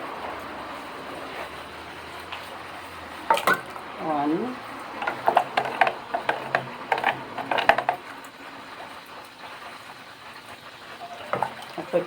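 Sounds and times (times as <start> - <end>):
utensils knocking against dishes: 5.0 - 8.0, 11.0 - 11.8.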